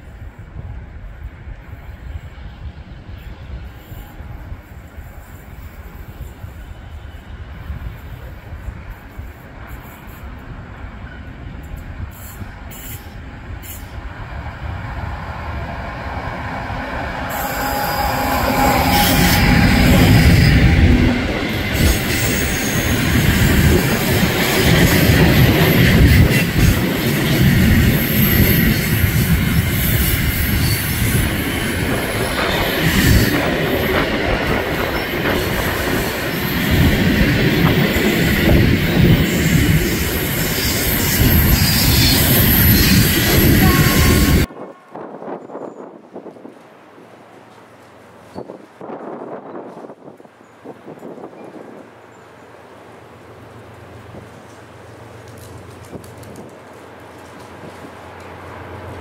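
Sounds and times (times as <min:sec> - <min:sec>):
high wheel squeal: 0:17.0 - 0:23.9, 0:37.9 - 0:44.5.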